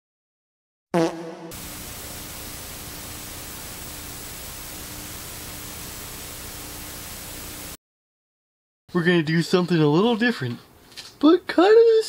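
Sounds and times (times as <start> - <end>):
faint hum: 1.6 - 7.8
static hiss: 1.6 - 7.8.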